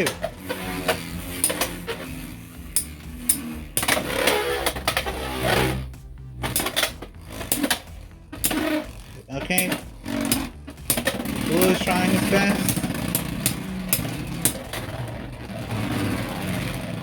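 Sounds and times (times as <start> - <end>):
spinning tops whining: 0.0 - 17.0
tops clacking together: 0.0 - 17.0.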